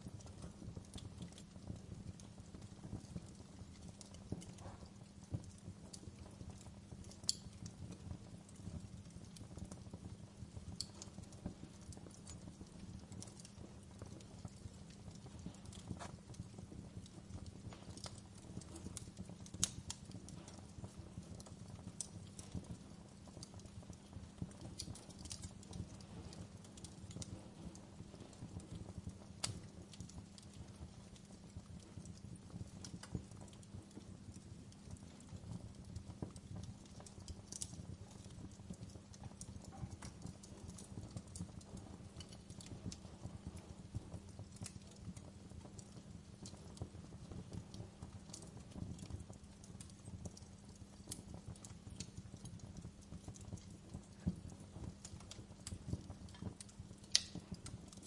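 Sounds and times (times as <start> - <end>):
wood fire crackling: 0.0 - 58.0
sharp fire pops: 7.0 - 7.7, 15.2 - 22.9, 52.7 - 58.0.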